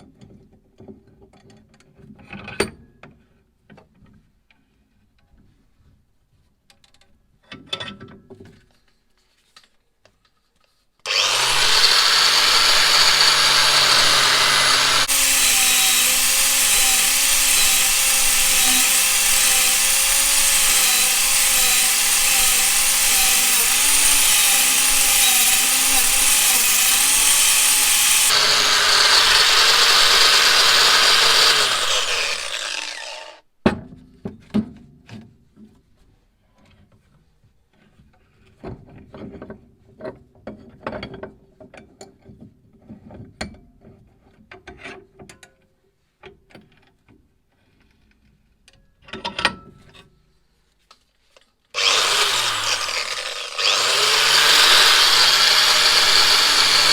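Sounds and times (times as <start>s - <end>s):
power tool grinding metal: 11.1s - 33.4s, 51.8s - 56.9s.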